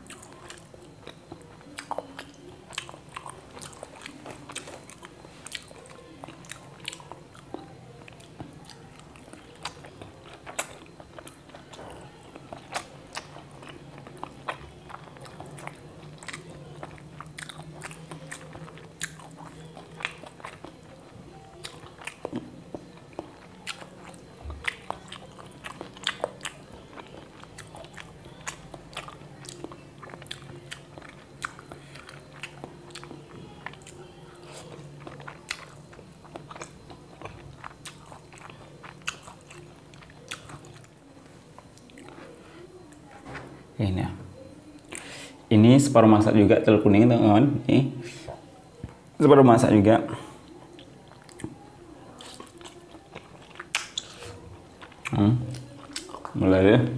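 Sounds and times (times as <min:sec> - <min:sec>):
person chewing eggs: 0:00.0 - 0:43.0, 0:50.1 - 0:56.4
mouth smacks and clicks: 0:52.2 - 0:54.2.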